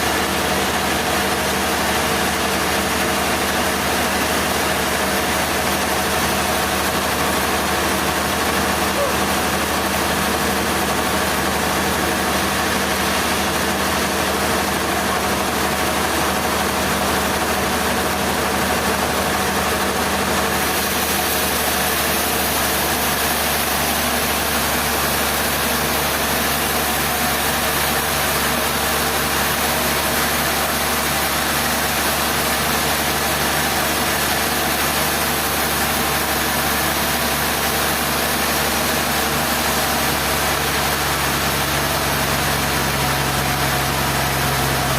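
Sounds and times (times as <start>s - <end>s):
engine idling: 0.0s - 44.9s.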